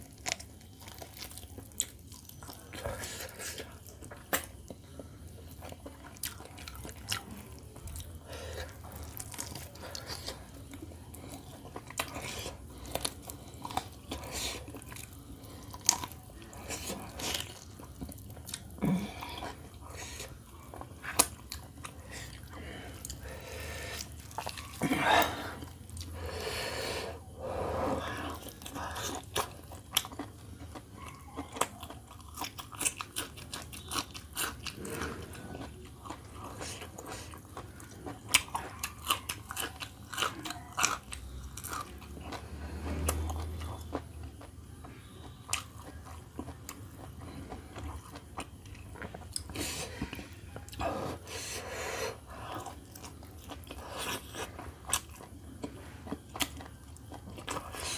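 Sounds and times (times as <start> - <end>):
chewing and crunching: 0.0 - 57.9.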